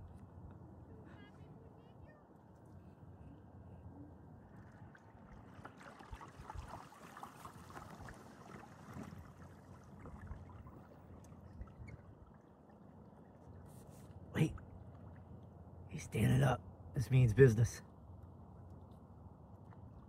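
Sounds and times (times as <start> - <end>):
water lapping against a kayak: 4.4 - 15.8.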